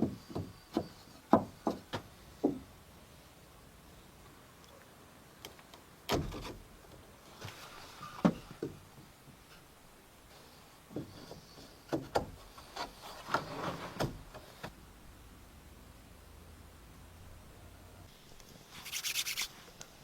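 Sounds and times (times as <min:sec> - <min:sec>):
wood knocking and scraping on wood: 0:00.0 - 0:02.7, 0:10.9 - 0:14.8.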